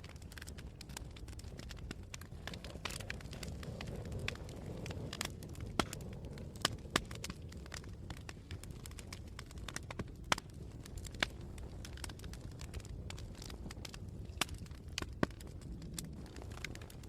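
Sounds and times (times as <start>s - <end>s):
campfire crackling and popping: 0.0s - 17.0s
low rumble of flames: 0.0s - 17.0s
wind: 0.0s - 17.0s.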